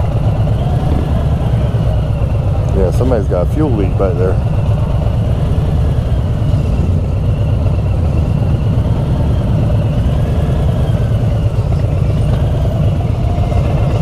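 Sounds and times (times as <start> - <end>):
vehicle engines idling in traffic: 0.0 - 14.0.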